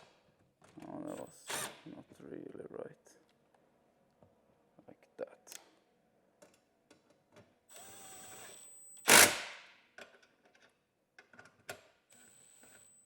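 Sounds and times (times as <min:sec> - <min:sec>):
cordless drill whining: 0:07.7 - 0:09.5, 0:12.1 - 0:13.0.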